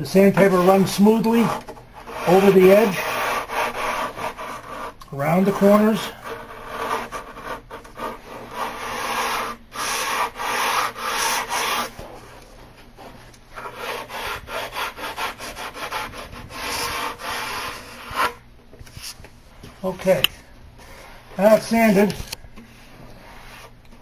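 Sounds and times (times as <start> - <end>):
sandpaper rubbing on wood: 0.2 - 12.0, 13.6 - 18.4.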